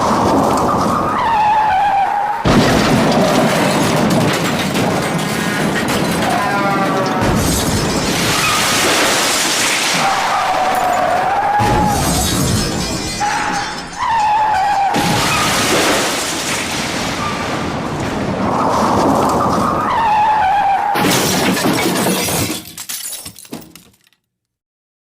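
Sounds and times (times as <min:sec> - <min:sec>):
glass shattering: 0:02.4 - 0:17.8, 0:21.0 - 0:24.2
glass pieces falling: 0:02.5 - 0:17.3, 0:21.0 - 0:24.3.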